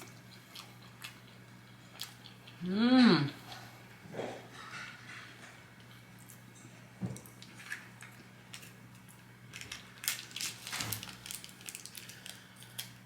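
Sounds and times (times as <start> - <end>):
packaging crinkling: 9.5 - 13.0.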